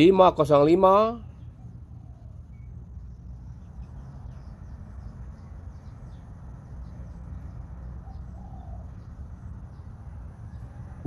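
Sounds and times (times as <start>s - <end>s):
birds chirping: 0.0s - 11.0s
steady low rumble: 1.2s - 11.0s
low coo: 8.0s - 9.0s.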